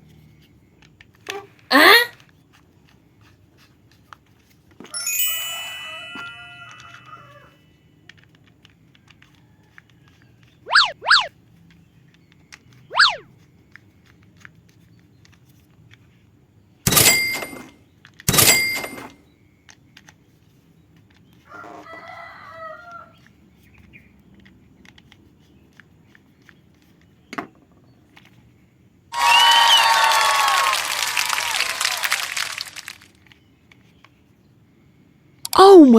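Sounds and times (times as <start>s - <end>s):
rooster-like crowing call: 5.4s - 7.6s, 21.5s - 23.2s, 29.2s - 31.7s
whistle-like glide: 10.7s - 11.3s, 12.9s - 13.2s.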